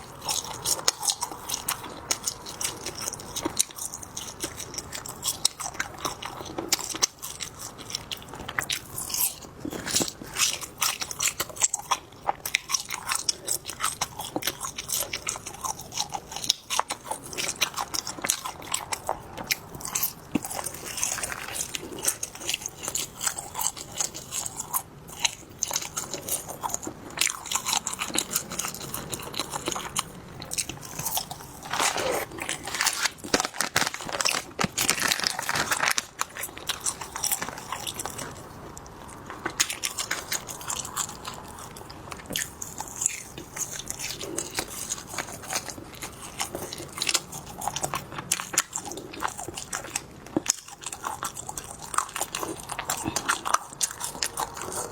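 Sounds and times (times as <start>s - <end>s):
biting and chewing: 0.0s - 54.9s
sharp crunches: 30.9s - 38.2s.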